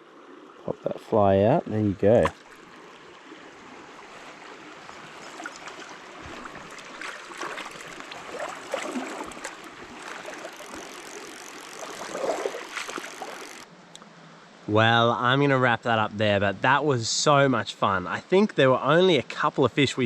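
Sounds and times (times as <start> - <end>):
stream water trickling: 0.0 - 13.7
small water splashes: 2.0 - 13.7.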